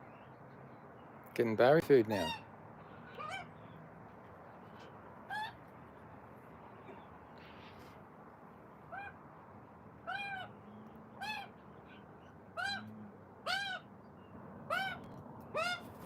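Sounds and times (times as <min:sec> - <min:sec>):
bird calling: 0:02.0 - 0:03.8, 0:04.5 - 0:05.7, 0:08.9 - 0:09.2, 0:10.0 - 0:16.0.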